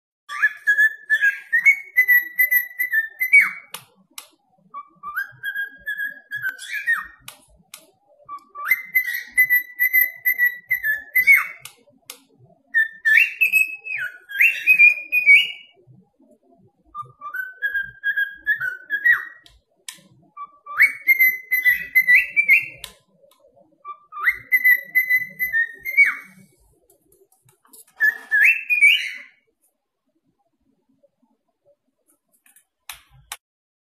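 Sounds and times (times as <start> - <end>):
cockatiel whistling a tune: 0.3 - 3.8, 4.6 - 7.3, 8.1 - 11.7, 12.6 - 15.8, 16.9 - 19.5, 20.3 - 22.9, 23.5 - 26.5, 27.9 - 29.4.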